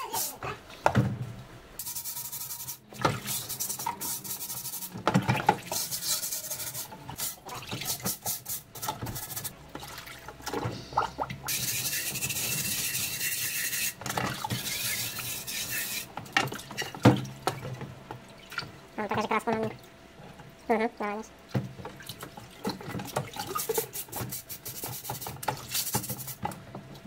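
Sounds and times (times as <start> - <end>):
scouring pad scrubbing metal: 1.8 - 9.6, 11.5 - 16.1
water sloshing: 9.5 - 11.5.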